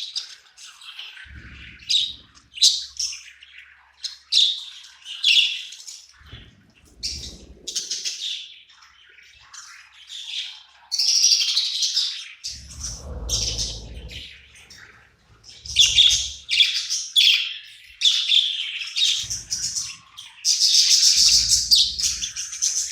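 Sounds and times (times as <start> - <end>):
low rumble: 1.3 - 2.5, 6.2 - 7.8, 12.5 - 16.8
budgerigars chirping: 9.1 - 22.9.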